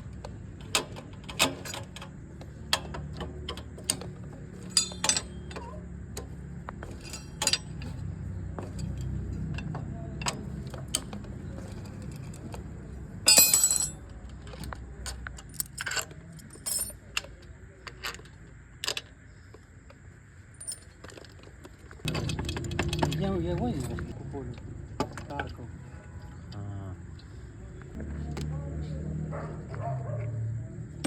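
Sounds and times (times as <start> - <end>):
metal jingling rattle: 0.0 - 14.6, 15.4 - 17.3, 20.4 - 24.1
metal tools clinking: 0.0 - 19.2, 20.4 - 24.2.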